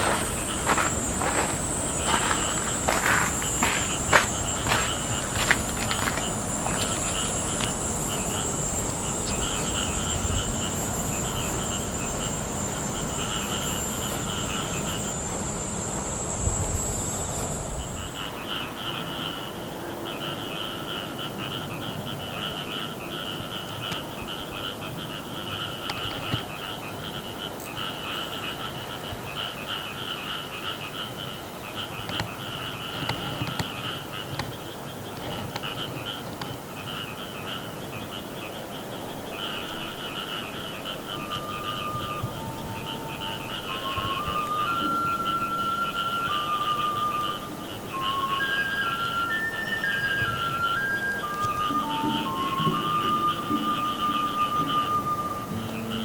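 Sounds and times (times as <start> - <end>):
chorus of pulsing animal calls: 0.0 - 16.4, 17.2 - 56.0
high-pitched drone: 0.0 - 18.4, 39.8 - 56.0.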